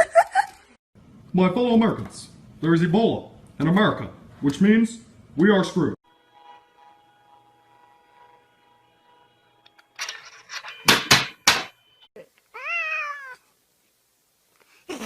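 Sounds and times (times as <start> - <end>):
cat meowing: 12.5 - 13.4.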